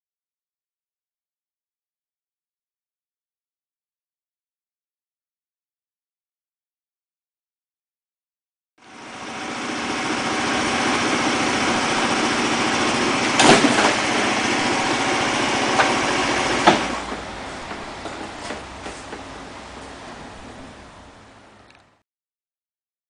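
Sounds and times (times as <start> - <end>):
moped engine running: 8.8 - 21.6.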